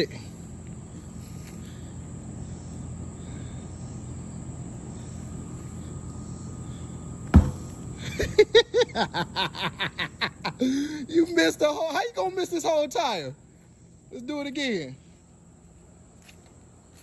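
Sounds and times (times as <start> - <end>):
insects chirring: 0.0 - 17.0
small knock: 7.3 - 7.8
sledgehammer thud: 7.3 - 7.9.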